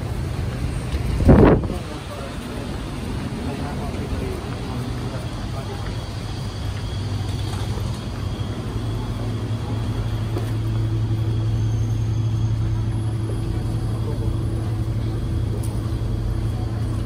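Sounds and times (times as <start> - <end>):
train carriage hum: 0.0 - 17.0.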